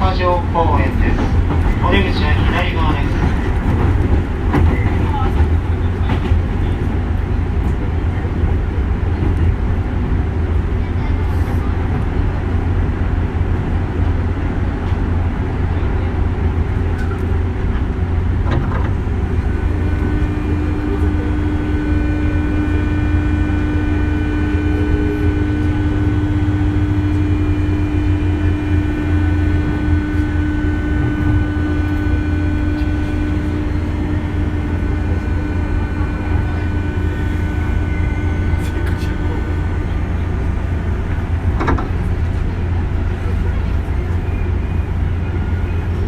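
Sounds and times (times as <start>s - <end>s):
train wheels rumbling on rail: 0.0s - 46.0s
steady hum with overtones: 19.0s - 46.0s.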